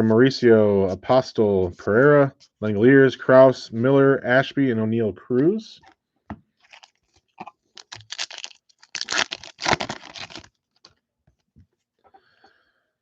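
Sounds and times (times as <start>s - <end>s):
foil wrapper tearing and crinkling: 6.6s - 11.0s.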